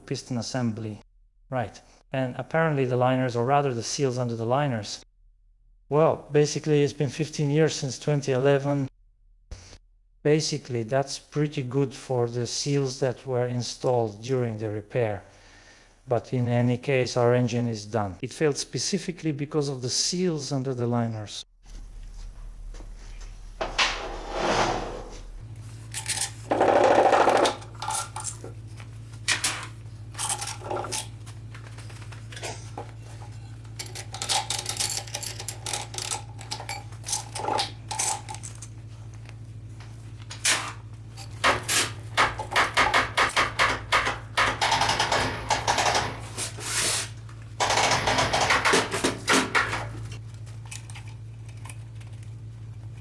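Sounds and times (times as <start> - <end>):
low steady hum: 9.5 - 53.0
metal tools clinking: 33.3 - 38.7.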